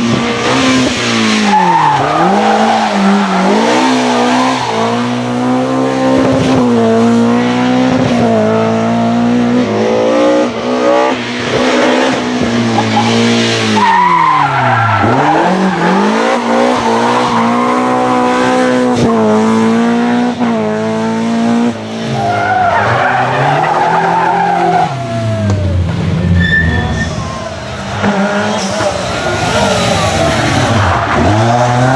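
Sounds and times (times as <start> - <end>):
rally car engine revving: 0.0 - 31.9
tyres squealing: 0.2 - 7.5, 12.8 - 19.7, 22.1 - 31.9.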